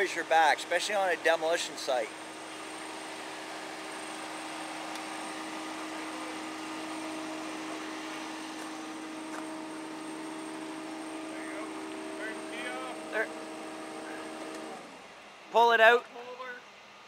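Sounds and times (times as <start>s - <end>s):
engine idling: 0.0s - 16.9s
fan air rushing: 0.0s - 17.0s.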